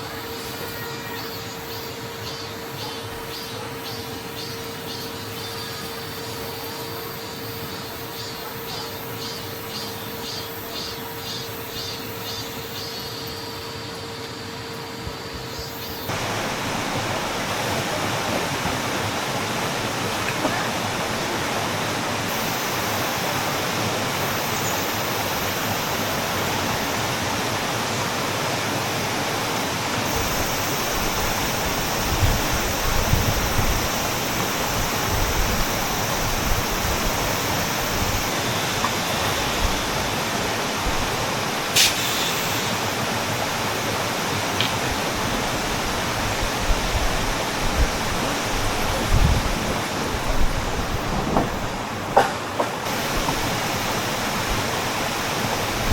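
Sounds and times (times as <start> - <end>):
stream rushing over rocks: 16.1 - 55.9
low thumps: 44.9 - 54.8.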